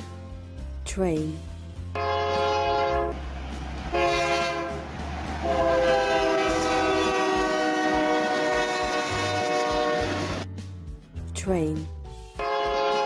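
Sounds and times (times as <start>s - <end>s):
train rumbling: 1.8s - 10.5s
train horn blowing: 1.9s - 3.2s, 3.9s - 10.4s, 12.4s - 13.0s.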